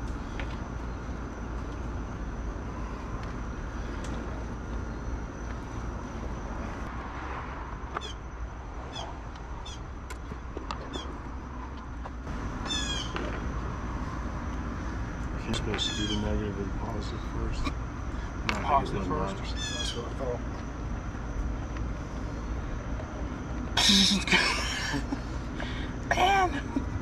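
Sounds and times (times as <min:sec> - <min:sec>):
low background hum: 0:00.0 - 0:27.0
high-pitched animal calls: 0:12.6 - 0:13.2, 0:15.8 - 0:16.3, 0:19.4 - 0:20.1.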